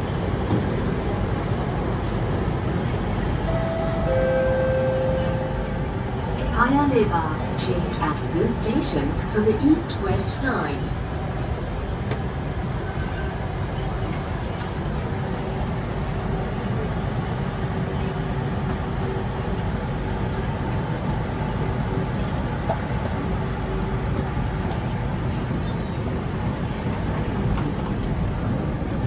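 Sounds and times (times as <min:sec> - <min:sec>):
low rumble of train: 0:00.0 - 0:29.0.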